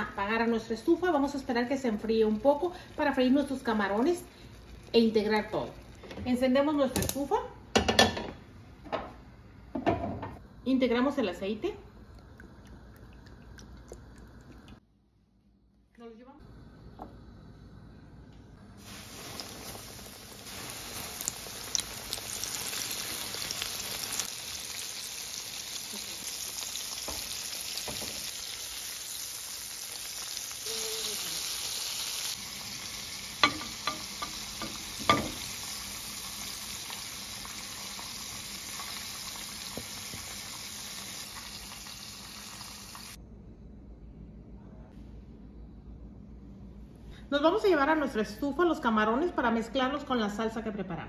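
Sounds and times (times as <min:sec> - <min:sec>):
shrimp sizzling in hot oil: 0:18.8 - 0:43.2.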